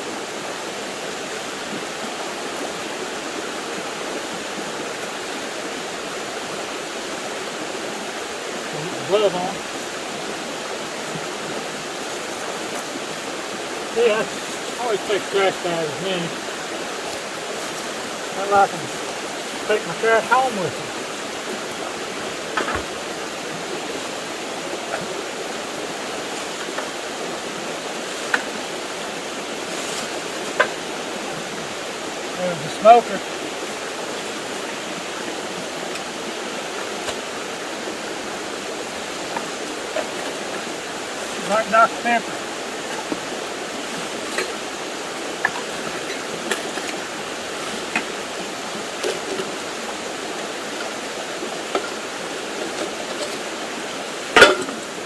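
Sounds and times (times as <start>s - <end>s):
creek water flowing: 0.0s - 55.0s
trash clinking and rustling: 54.2s - 55.0s.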